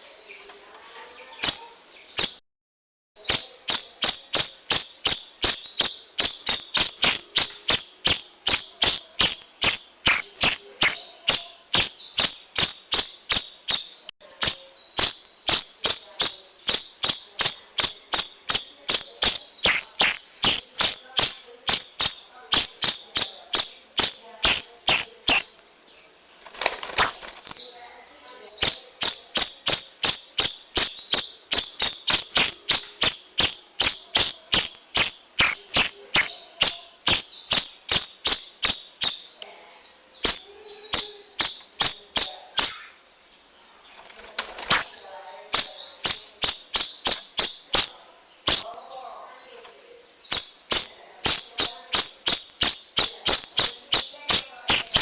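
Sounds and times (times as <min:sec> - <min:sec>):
songbird sharp high chips: 0:14.5 - 0:25.6, 0:28.6 - 0:39.2, 0:44.6 - 0:48.7.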